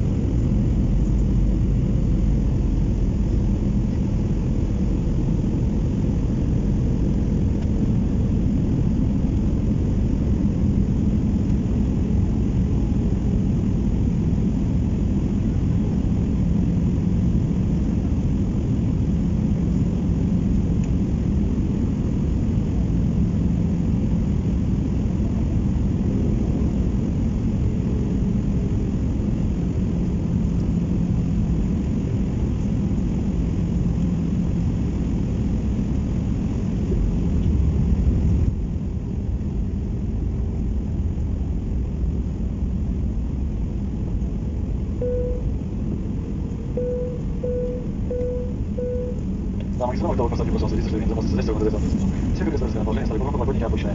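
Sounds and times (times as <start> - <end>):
faint cabin hum: 0.0 - 53.9
jet engines and airflow rumble: 0.0 - 53.9.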